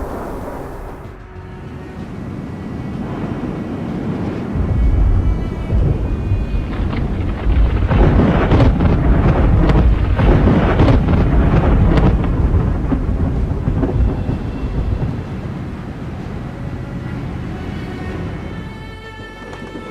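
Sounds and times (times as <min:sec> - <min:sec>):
rain: 0:00.0 - 0:19.9
thunder rumbling and cracking: 0:00.0 - 0:19.9.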